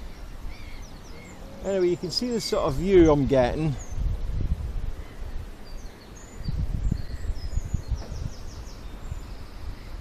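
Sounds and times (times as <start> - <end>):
small birds chirping: 0.0 - 4.2, 4.9 - 10.0
wind rumble on microphone: 0.0 - 10.0
microphone handling noise: 7.7 - 8.4.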